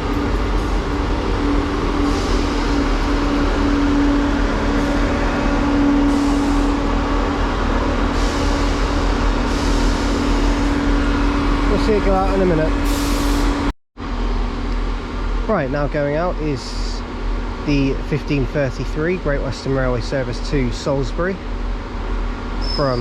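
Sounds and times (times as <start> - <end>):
diesel train engine idling: 0.0 - 23.0
air hissing: 8.0 - 10.4, 12.8 - 13.7.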